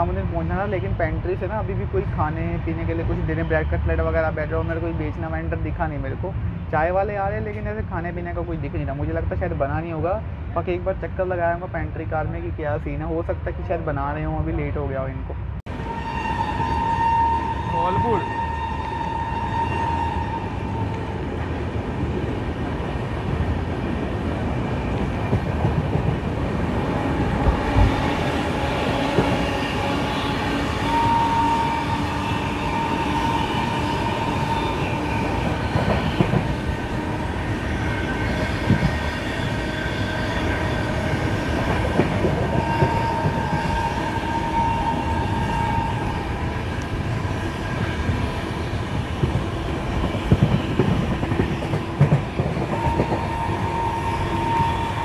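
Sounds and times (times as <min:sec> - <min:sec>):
train rumble: 0:00.0 - 0:55.0
high wheel squeal: 0:15.7 - 0:20.9, 0:29.3 - 0:41.7, 0:42.4 - 0:46.5, 0:52.7 - 0:55.0.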